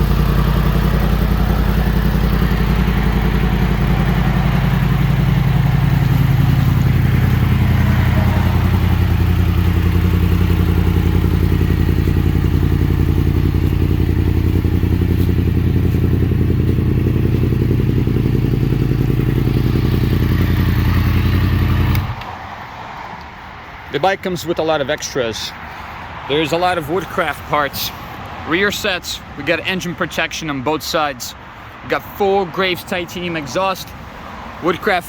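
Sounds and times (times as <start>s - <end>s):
motorcycle engine idling: 0.0s - 22.2s.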